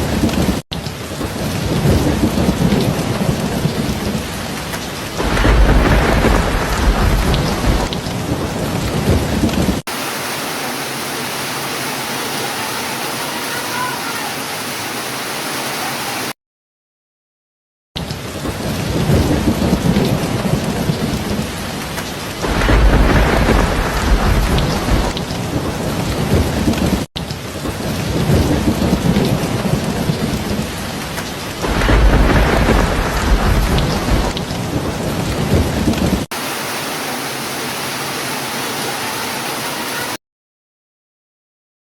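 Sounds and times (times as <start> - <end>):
thunder rolling: 0.0 - 9.8, 18.3 - 36.3
heavy rain: 0.0 - 16.4, 18.0 - 40.2.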